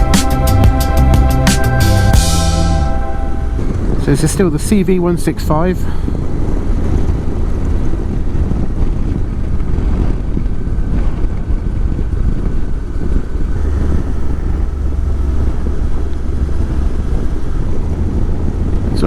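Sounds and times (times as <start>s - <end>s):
wind rushing over microphone: 0.0s - 19.0s
motorcycle engine running: 6.2s - 19.0s.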